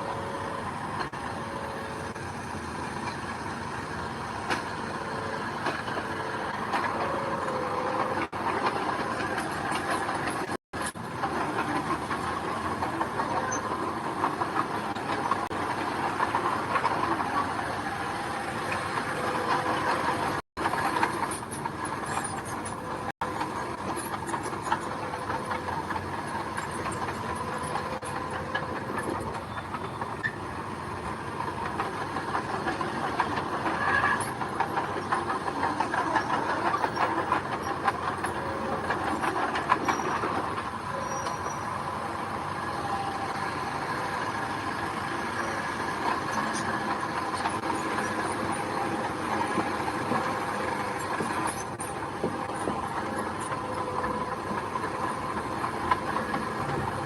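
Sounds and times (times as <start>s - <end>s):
diesel machinery engine running: 0.0s - 57.0s
rattling and clanking on gravel: 0.0s - 57.0s.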